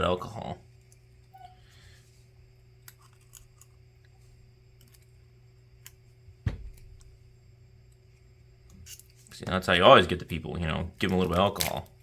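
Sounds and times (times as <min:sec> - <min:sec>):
sharp knock: 0:06.4 - 0:06.8.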